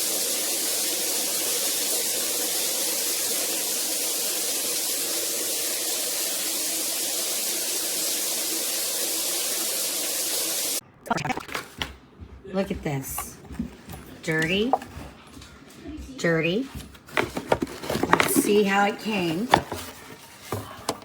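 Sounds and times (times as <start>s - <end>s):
water spraying from shower head: 0.0s - 10.8s.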